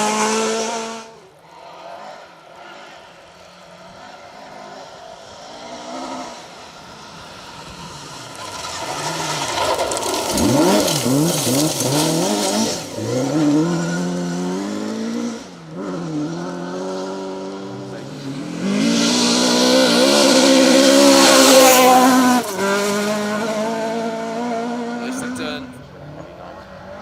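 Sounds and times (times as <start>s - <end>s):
car passing rush: 0.0s - 27.0s
rally car engine revving: 0.0s - 27.0s.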